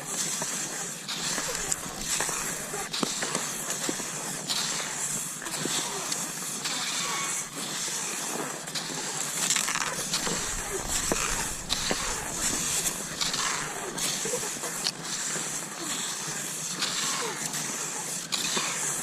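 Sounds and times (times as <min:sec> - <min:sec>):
skis crunching over snow: 0:00.0 - 0:19.0.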